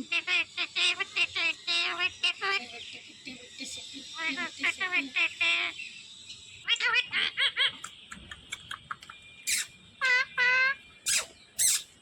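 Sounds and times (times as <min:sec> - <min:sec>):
parrot chirping and screeching: 0:00.1 - 0:02.7, 0:04.2 - 0:05.8, 0:06.6 - 0:07.9, 0:09.4 - 0:12.0.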